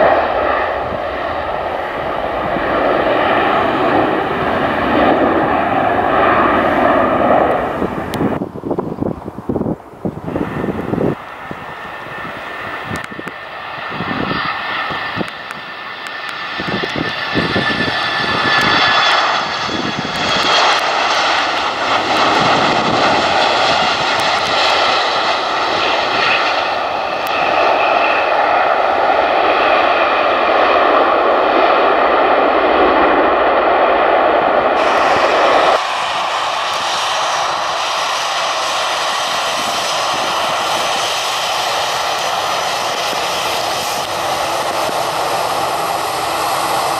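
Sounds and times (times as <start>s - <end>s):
jet engines roaring: 0.0s - 46.9s.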